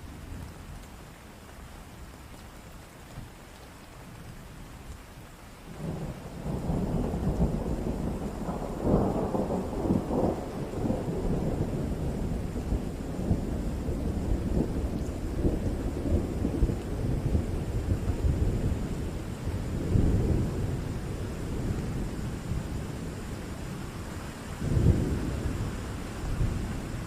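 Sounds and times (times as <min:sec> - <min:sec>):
steady rain: 0:00.0 - 0:27.0
thunder rumbling: 0:05.8 - 0:27.0.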